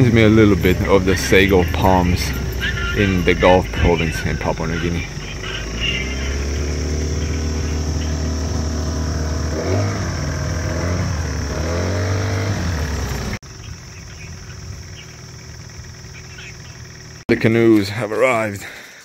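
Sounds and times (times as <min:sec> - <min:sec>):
faint bird chirps: 0:00.0 - 0:09.0, 0:13.2 - 0:17.2
vehicle engine revving: 0:00.0 - 0:17.3.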